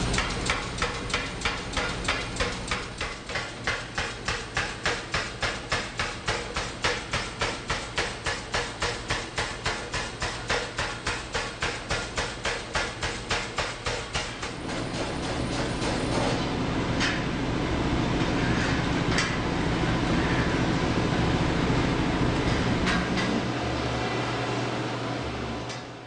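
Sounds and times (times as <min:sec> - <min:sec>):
power hammer striking hot steel: 0:00.0 - 0:16.4
low machinery hum: 0:00.0 - 0:26.0.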